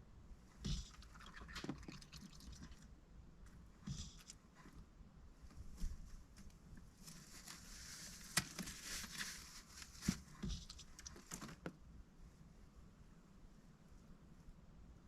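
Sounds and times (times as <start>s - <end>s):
soft rustling: 3.4s - 12.7s.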